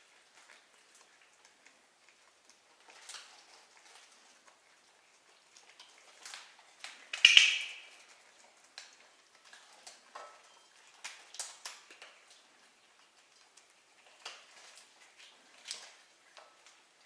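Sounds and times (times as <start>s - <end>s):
wood fire crackling and popping: 7.1s - 8.0s.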